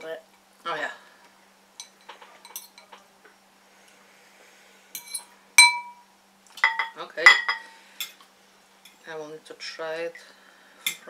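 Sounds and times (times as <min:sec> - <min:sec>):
utensil clinking against bowl: 0:05.0 - 0:06.0, 0:06.6 - 0:07.7.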